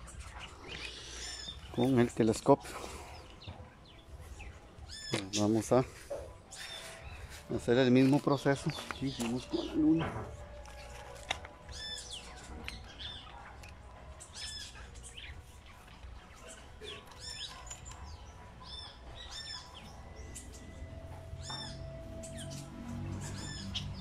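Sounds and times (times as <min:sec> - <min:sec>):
smaller bird chirps: 0:14.2 - 0:24.0
bird chirp rising and falling: 0:16.4 - 0:24.0.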